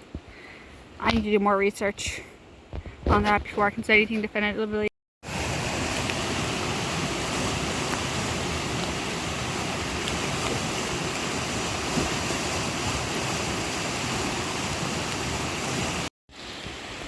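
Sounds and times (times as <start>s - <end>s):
river rushing: 5.2s - 17.0s.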